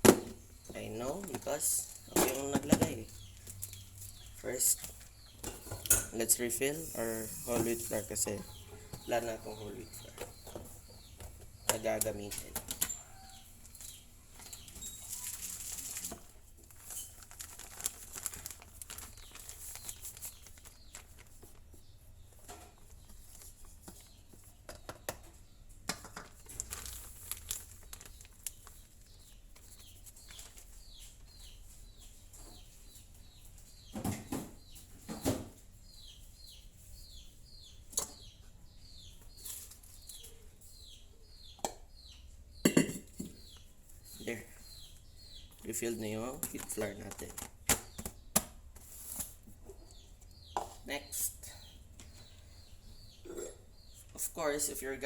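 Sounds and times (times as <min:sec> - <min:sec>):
bird chirping: 0:00.1 - 0:55.0
plastic packaging rustling: 0:14.4 - 0:21.8, 0:26.2 - 0:30.8, 0:46.4 - 0:47.7.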